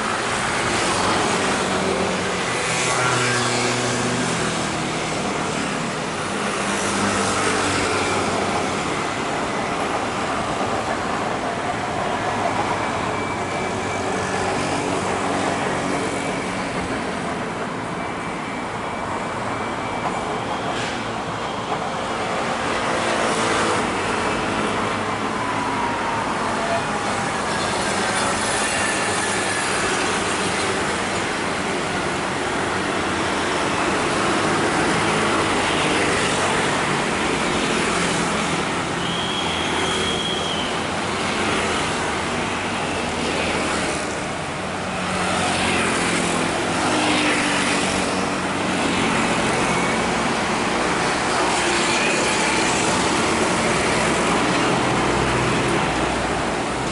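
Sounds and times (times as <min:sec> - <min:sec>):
street traffic noise: 0:00.0 - 0:56.9
brief high squeal: 0:39.0 - 0:40.8.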